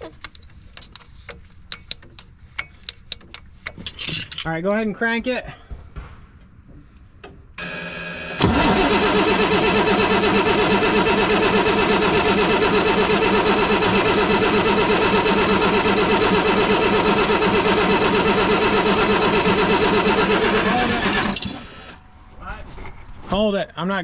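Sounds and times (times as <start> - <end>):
starter cranking diesel engine: 7.6 - 22.0.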